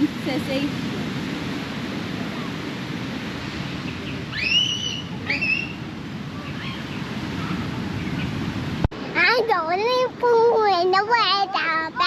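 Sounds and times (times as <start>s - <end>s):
ocean surf: 0.0s - 12.0s
wind: 0.0s - 12.0s
short rising whistle-like calls: 4.3s - 5.8s.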